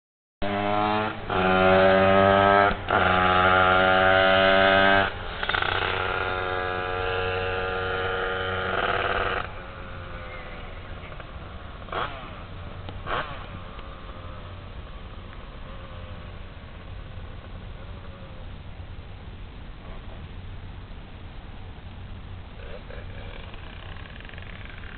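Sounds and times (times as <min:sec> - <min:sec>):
two-stroke engine revving: 0:00.4 - 0:14.4, 0:22.6 - 0:24.9.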